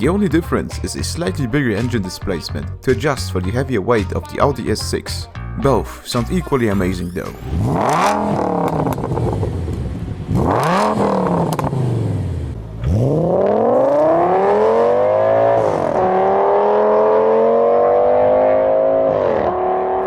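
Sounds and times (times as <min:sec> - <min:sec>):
car engine revving and accelerating: 0:07.4 - 0:20.0.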